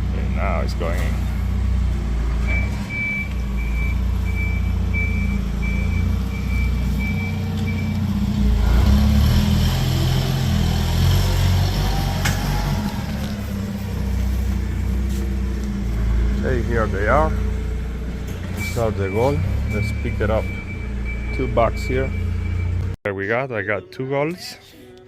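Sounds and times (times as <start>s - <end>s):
engine hum: 0.0s - 23.0s
reversing alarm beeping: 2.4s - 8.1s, 18.6s - 23.0s.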